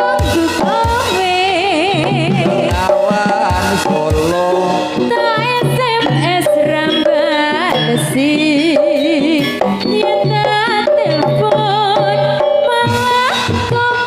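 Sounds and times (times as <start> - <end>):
steady bass: 0.0 - 6.8
band playing wavering melody: 0.0 - 14.0.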